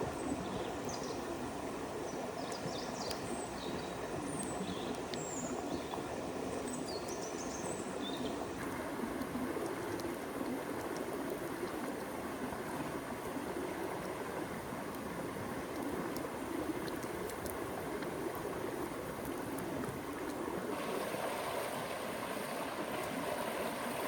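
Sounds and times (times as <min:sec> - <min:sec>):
small birds chirping: 0:02.4 - 0:08.4
river water rushing: 0:16.0 - 0:24.0.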